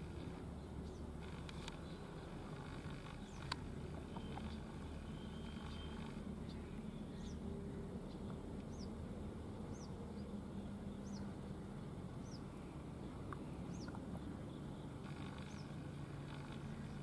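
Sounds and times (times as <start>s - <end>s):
small bird calling: 0.8s - 7.4s.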